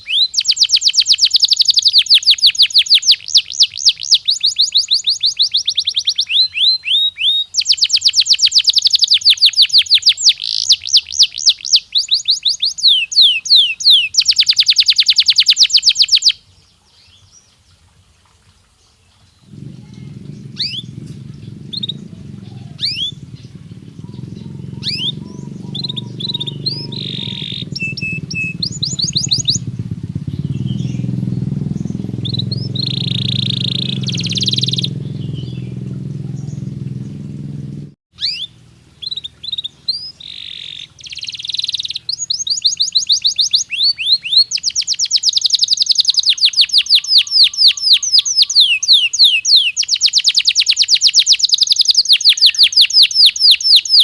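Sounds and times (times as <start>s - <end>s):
canary singing: 0.0s - 16.4s, 19.5s - 54.0s
low background rumble: 19.5s - 38.0s.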